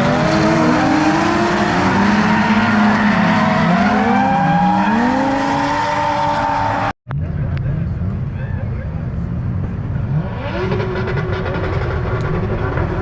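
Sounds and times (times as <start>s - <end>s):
drift car engines revving: 0.0s - 6.9s, 9.8s - 13.0s.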